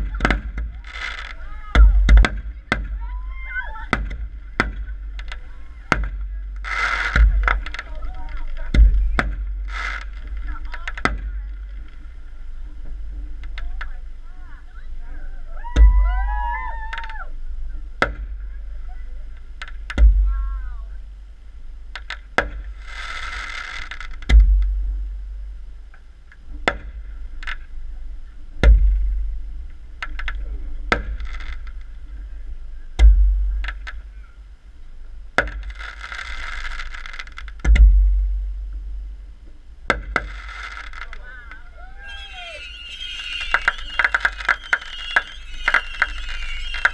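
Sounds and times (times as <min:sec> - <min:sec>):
firework shells booming: 0:00.0 - 0:12.2, 0:18.0 - 0:18.5, 0:21.9 - 0:25.7, 0:26.5 - 0:27.8, 0:28.6 - 0:32.3, 0:35.3 - 0:46.9
sharp firework cracks: 0:00.0 - 0:12.3, 0:18.0 - 0:18.5, 0:19.4 - 0:20.3, 0:21.9 - 0:25.2, 0:25.8 - 0:27.8, 0:28.6 - 0:32.2, 0:33.0 - 0:34.4, 0:35.3 - 0:46.9
hissing firework crackle: 0:00.0 - 0:46.9.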